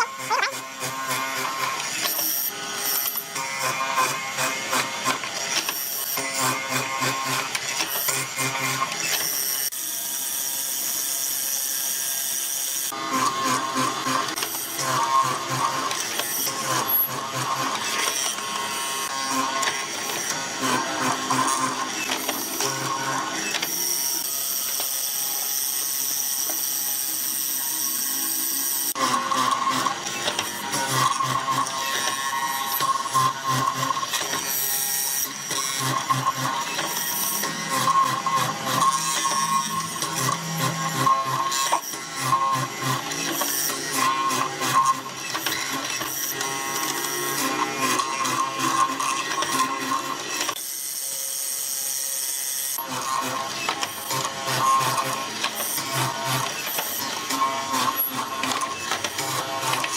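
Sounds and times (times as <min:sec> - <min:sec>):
power tool hiss and whine: 0:00.0 - 0:59.9
workshop tool noise: 0:00.0 - 0:59.9
workshop clatter of clicks: 0:53.2 - 0:59.9.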